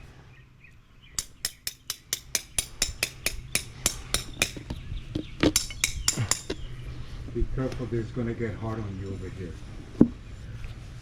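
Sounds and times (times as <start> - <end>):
tamper striking concrete: 1.2 - 6.6.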